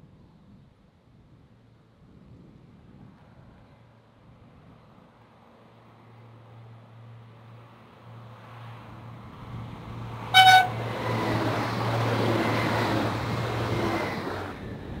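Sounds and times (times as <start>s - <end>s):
train passing on rails: 3.1s - 15.0s
train horn toot: 10.3s - 10.8s.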